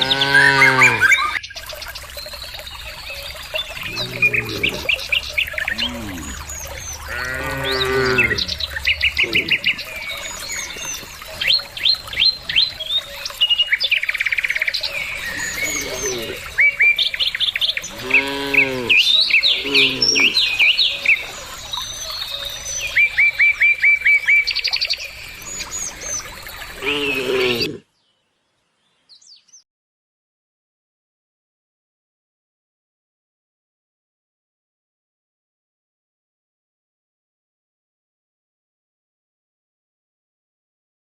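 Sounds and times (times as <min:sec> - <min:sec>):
cattle mooing: 0:00.0 - 0:01.1, 0:03.9 - 0:04.9, 0:05.7 - 0:06.4, 0:07.0 - 0:08.6, 0:17.9 - 0:20.4, 0:26.8 - 0:27.8
small birds chirping: 0:00.0 - 0:29.6.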